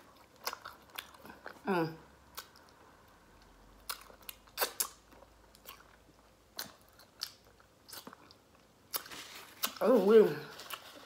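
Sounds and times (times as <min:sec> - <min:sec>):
wet lip smacks while chewing: 0:03.8 - 0:09.8.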